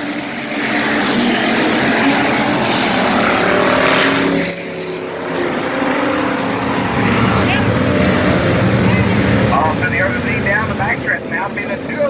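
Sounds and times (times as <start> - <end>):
race car engines at full throttle: 0.0 - 12.0.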